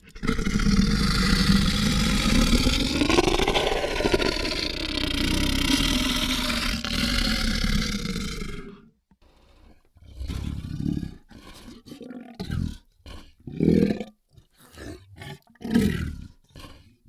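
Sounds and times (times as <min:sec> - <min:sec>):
monster choking and gagging: 0:00.0 - 0:07.8
creature sound: 0:00.0 - 0:08.7.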